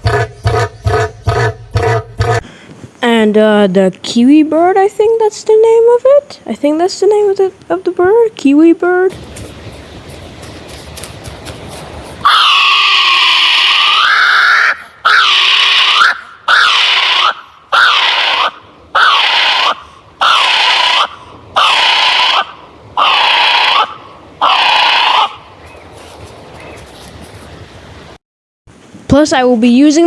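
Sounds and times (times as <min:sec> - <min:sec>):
shrill animal calls: 0:12.2 - 0:25.8.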